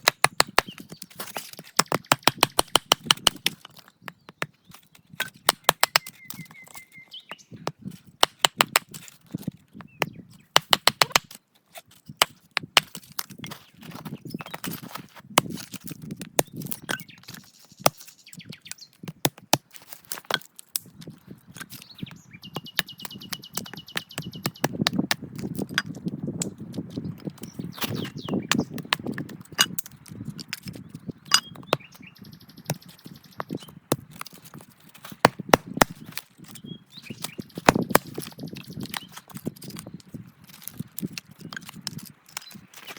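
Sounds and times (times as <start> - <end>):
small birds trilling: 0.0 - 42.9
wood fire crackling: 33.8 - 36.4.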